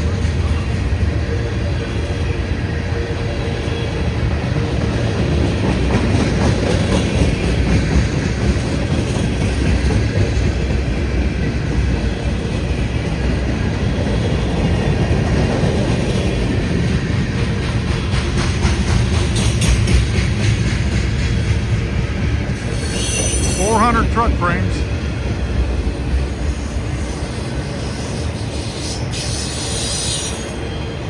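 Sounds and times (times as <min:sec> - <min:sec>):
clickety-clack over rail joints: 0:00.0 - 0:23.6
freight train wheels rumbling: 0:00.0 - 0:31.0.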